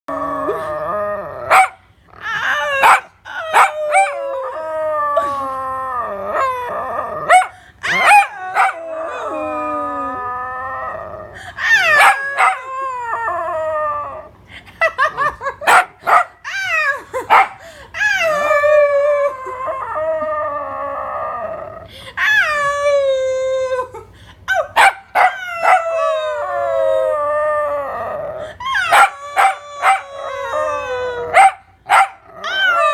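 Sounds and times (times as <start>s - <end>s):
dog howling: 0.1s - 14.3s, 18.0s - 23.9s, 24.5s - 32.9s
dog yipping: 2.8s - 4.1s, 28.8s - 30.0s, 31.3s - 32.2s.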